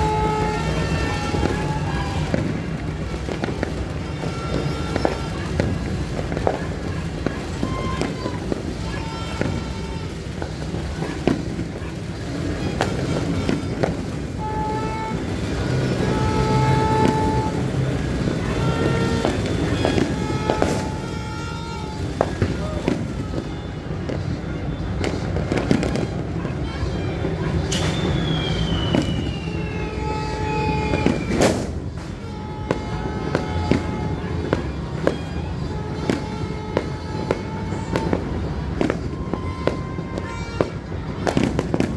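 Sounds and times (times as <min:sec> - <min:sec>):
firecrackers banging: 0:00.0 - 0:41.9
horn blowing: 0:00.0 - 0:41.9
street engine din: 0:00.0 - 0:41.9
high whistle sliding down: 0:27.6 - 0:31.6.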